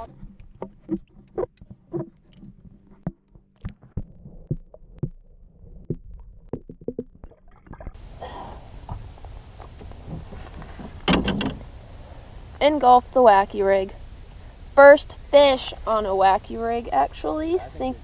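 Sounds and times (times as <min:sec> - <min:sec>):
low rumbling with hiss: 0:08.0 - 0:18.0.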